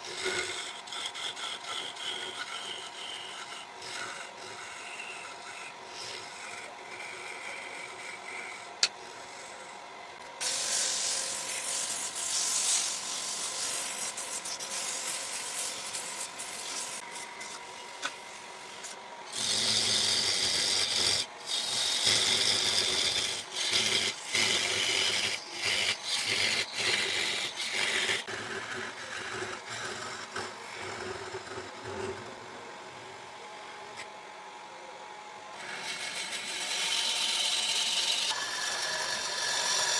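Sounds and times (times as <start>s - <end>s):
tool scraping spinning wood: 0.0s - 34.1s, 35.5s - 39.9s
wood lathe humming: 0.0s - 39.9s.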